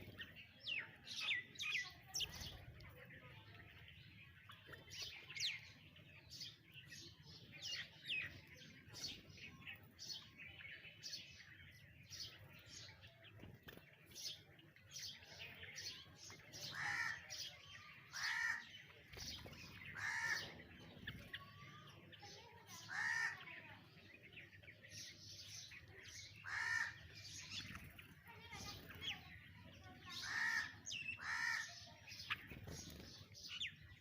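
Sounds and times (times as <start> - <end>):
birds chirping: 0.0 - 34.0
harsh bird call: 16.6 - 18.8, 19.8 - 20.6.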